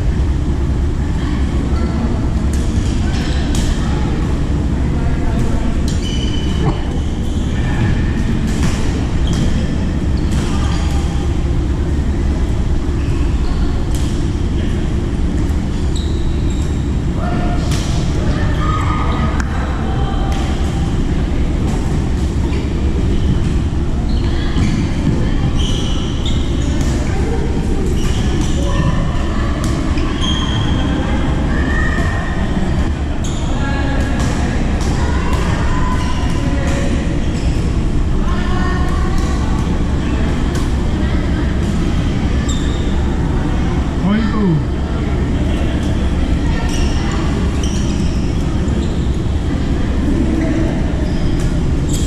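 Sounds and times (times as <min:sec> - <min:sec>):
shoe squeaks on court floor: 0:05.9 - 0:07.6, 0:47.6 - 0:49.2.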